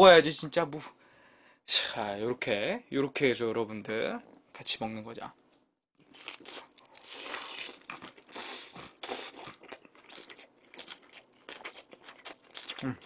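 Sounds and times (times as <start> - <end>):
person chewing with wet crunches: 6.0 - 13.0.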